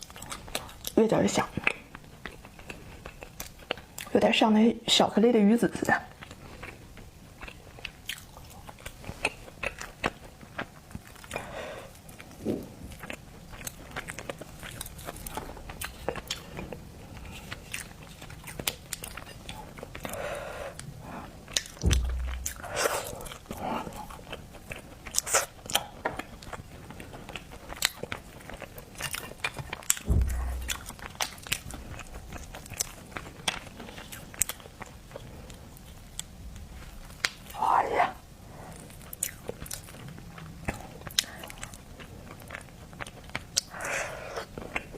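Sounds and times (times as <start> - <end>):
chewing and biting seafood: 0.0 - 1.0, 6.1 - 37.6, 38.7 - 44.9
dull low thumps: 21.8 - 23.3, 30.0 - 32.0.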